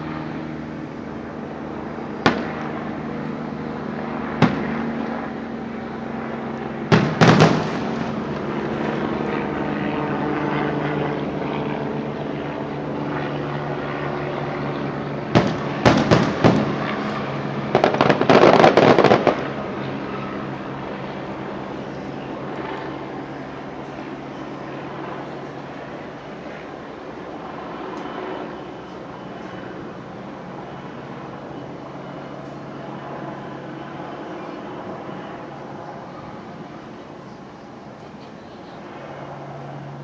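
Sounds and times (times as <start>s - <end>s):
steady low hum: 0.0s - 40.0s
fireworks bangs: 2.2s - 2.7s, 4.4s - 5.0s, 6.9s - 8.5s, 15.3s - 19.4s
fireworks crackling: 6.9s - 8.5s, 15.3s - 19.4s.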